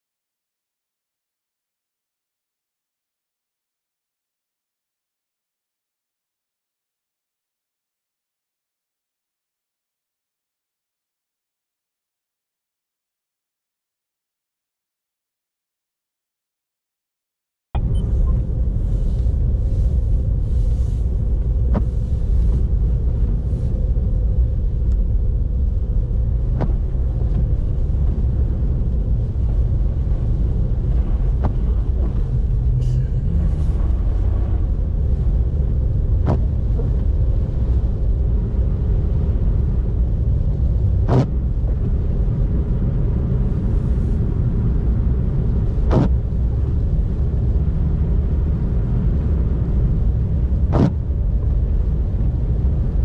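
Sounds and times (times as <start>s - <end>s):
car engine and tyre rumble: 17.8s - 53.0s.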